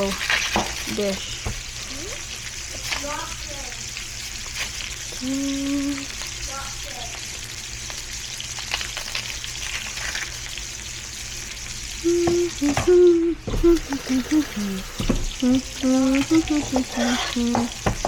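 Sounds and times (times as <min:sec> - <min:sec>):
meat sizzling in a frying pan: 0:00.0 - 0:13.2, 0:13.8 - 0:18.0
utensil scraping a pan: 0:16.1 - 0:18.0.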